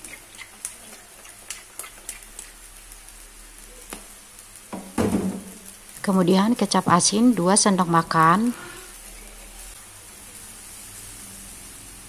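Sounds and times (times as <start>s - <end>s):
small crackles: 0.0s - 4.7s, 5.4s - 7.2s
oil sizzling in a wok: 0.0s - 12.0s.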